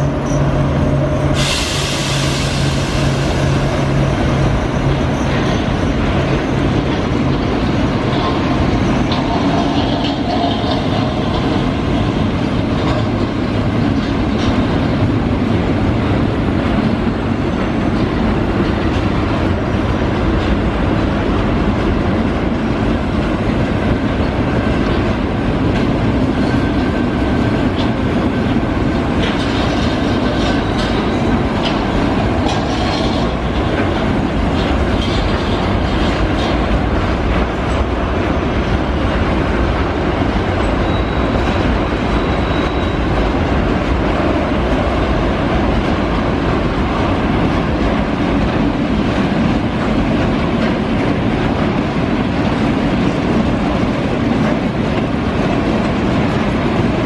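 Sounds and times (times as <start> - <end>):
freight train rumbling past: 0.0 - 57.0
wheels clacking over rail joints: 3.4 - 57.0.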